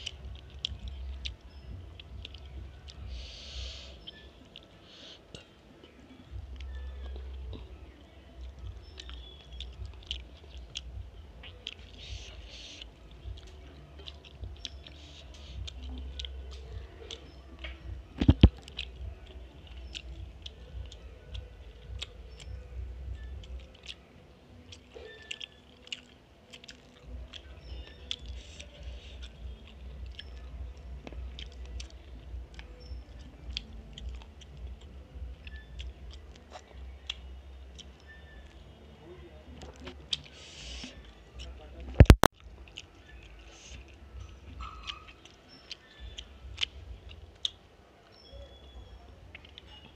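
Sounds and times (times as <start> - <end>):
chewing and mouth sounds: 0.0 - 49.9
wet clicks and smacks: 8.4 - 24.0.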